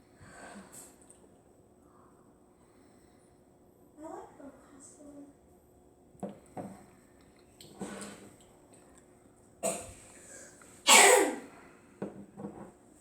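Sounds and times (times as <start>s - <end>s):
person coughing: 10.9s - 11.5s.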